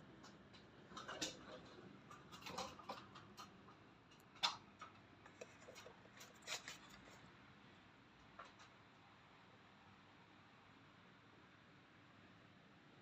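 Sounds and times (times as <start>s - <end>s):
light handling clicks and scrapes: 0.3s - 7.3s.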